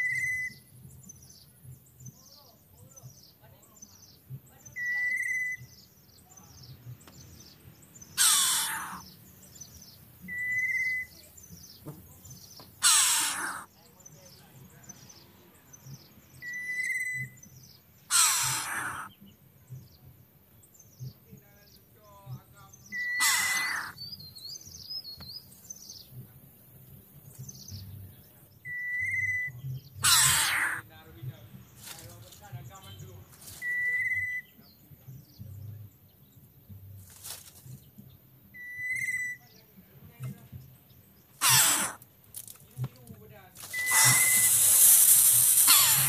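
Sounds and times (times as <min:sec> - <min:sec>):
harsh bird calls: 0:00.0 - 0:20.0, 0:20.7 - 0:34.9, 0:38.5 - 0:39.8, 0:40.6 - 0:46.0
birds chirping: 0:00.0 - 0:46.0
whistle-like bird note: 0:43.7 - 0:46.0.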